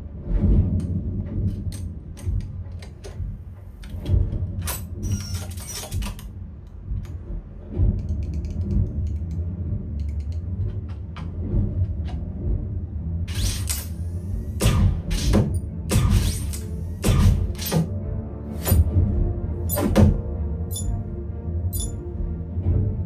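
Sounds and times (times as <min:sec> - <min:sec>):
mechanical clicks and knocks: 0:01.6 - 0:06.3, 0:13.3 - 0:17.9, 0:18.6 - 0:18.9, 0:19.7 - 0:21.0, 0:21.8 - 0:22.0
deep low rumble: 0:06.2 - 0:23.0.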